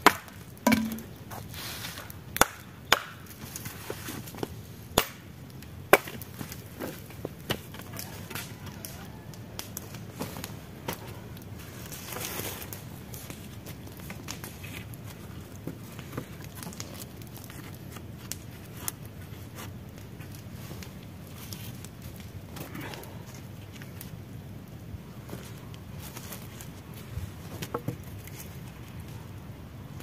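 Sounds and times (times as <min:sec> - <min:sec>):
light clicks and crackles: 0:05.5 - 0:29.4.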